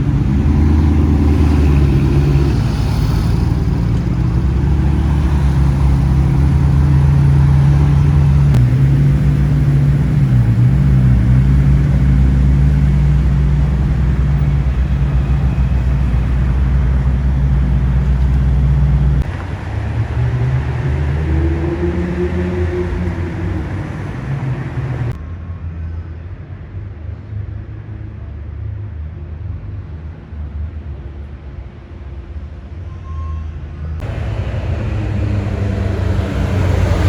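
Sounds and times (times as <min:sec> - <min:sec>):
car engine droning: 0:00.0 - 0:25.2, 0:34.0 - 0:37.0.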